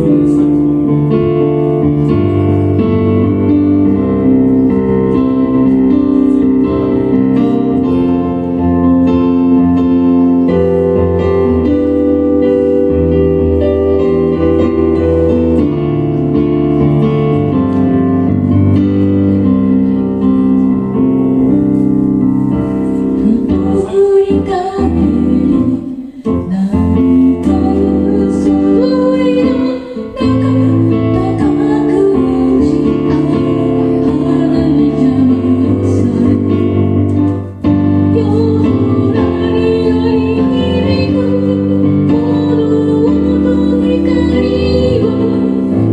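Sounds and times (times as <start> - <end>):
band music with keyboard chords: 0.0 - 45.9
person singing: 23.2 - 45.9.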